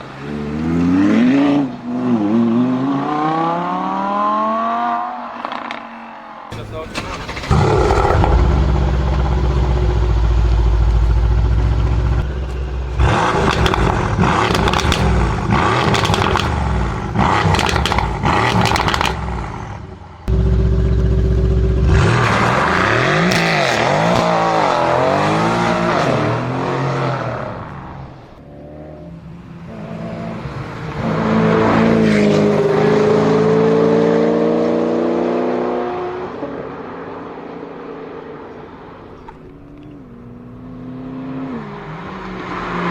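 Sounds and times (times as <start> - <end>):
sharp engine cracks: 6.5 - 10.1, 10.9 - 19.6
sports car engine revving: 6.5 - 27.9.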